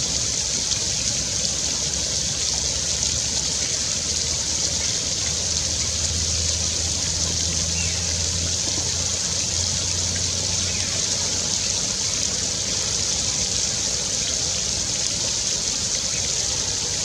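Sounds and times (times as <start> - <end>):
flowing water rushing: 0.0 - 17.0.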